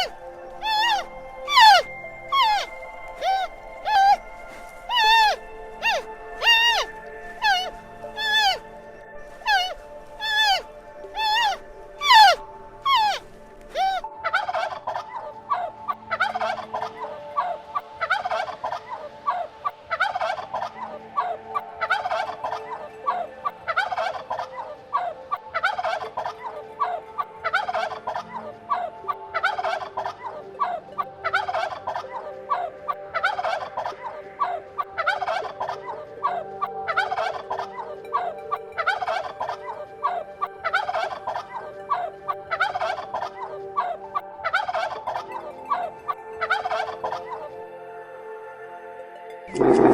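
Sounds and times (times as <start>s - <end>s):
rapid rattling bird calls: 0.0s - 8.7s, 9.4s - 15.2s
bird chorus: 0.0s - 47.7s.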